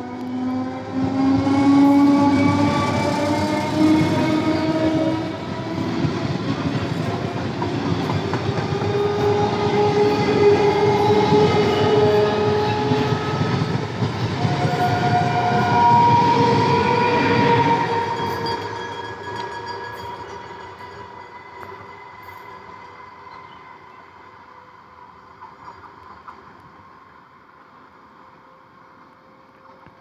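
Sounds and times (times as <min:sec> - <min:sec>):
train wheels rumbling and clattering: 0:00.0 - 0:27.9.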